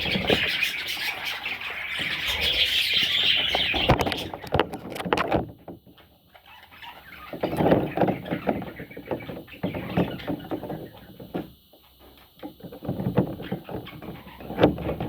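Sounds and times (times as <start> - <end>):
budgerigars chattering: 0.0 - 4.6, 6.3 - 11.1.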